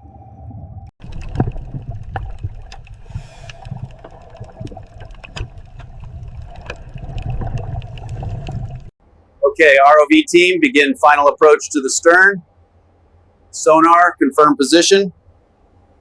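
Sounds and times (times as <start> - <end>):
water gurgling and sloshing: 0.0 - 9.0
steady low rumble: 0.0 - 12.4.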